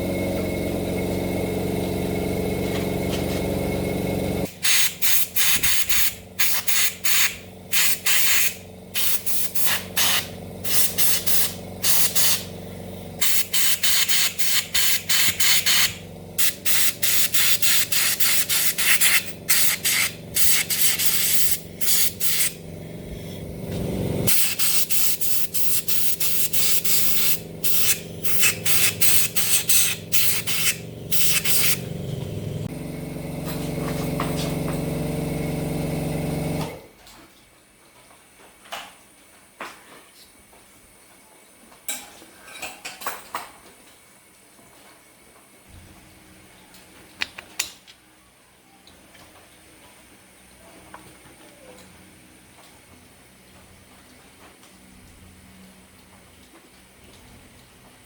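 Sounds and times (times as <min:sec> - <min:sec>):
spray hissing in bursts: 0:03.5 - 0:23.4, 0:24.3 - 0:32.1.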